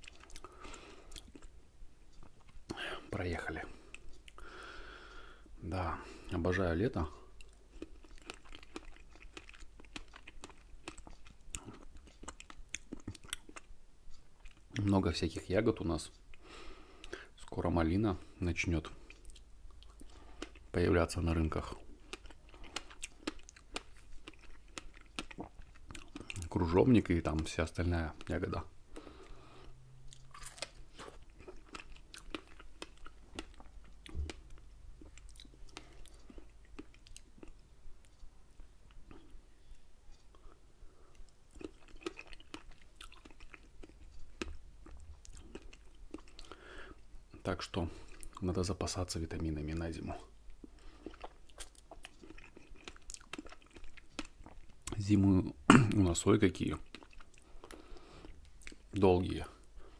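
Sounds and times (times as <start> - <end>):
chewing strawberry: 0.0 - 2.8, 6.1 - 17.6, 18.2 - 27.5, 28.1 - 48.6, 50.0 - 55.0, 56.6 - 59.9
mouth smacks and clicks: 0.0 - 3.1, 7.4 - 14.9, 21.6 - 29.4, 41.1 - 46.6, 50.5 - 55.1, 56.7 - 59.0.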